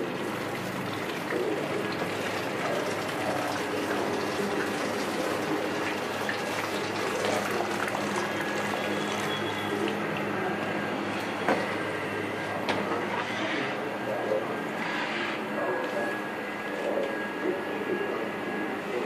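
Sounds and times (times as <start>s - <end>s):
water running: 0.0s - 10.6s.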